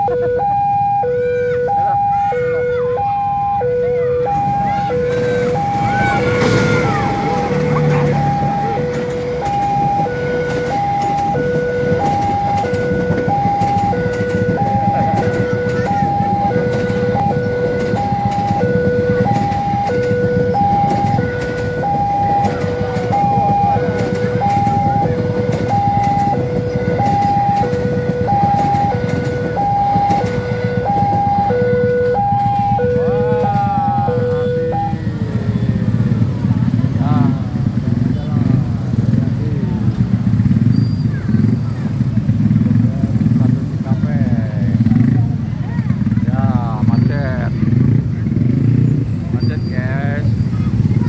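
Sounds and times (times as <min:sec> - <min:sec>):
level crossing two-tone alarm: 0:00.0 - 0:36.2
road traffic rumble: 0:00.0 - 0:51.0.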